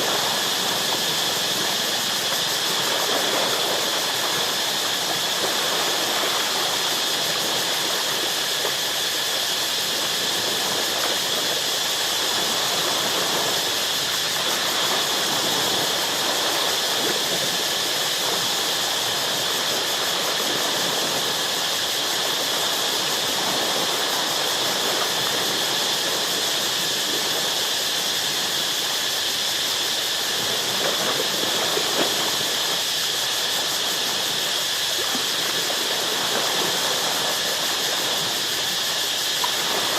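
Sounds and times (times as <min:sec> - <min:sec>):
jungle insects droning: 0:00.0 - 0:39.9
ocean waves washing against rocks: 0:00.0 - 0:39.9.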